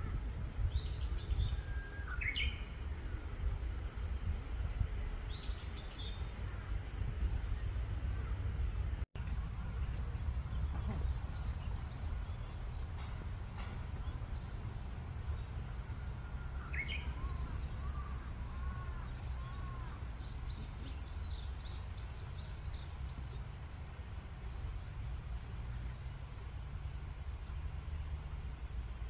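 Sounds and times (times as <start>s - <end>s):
steady low rumble: 0.0s - 29.0s
birds chirping: 9.2s - 26.4s.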